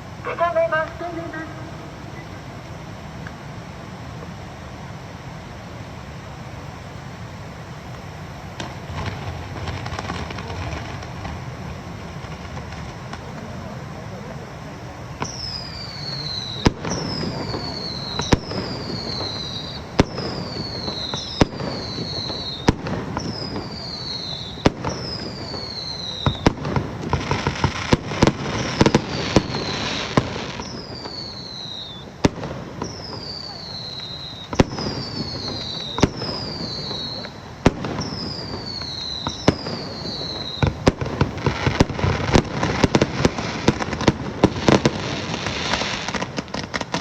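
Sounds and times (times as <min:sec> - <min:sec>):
crowd murmur: 0:00.0 - 0:47.0
firework bangs: 0:00.0 - 0:47.0
rapid crackling pops: 0:07.9 - 0:13.8, 0:15.2 - 0:47.0
whistling firework shells: 0:15.1 - 0:47.0.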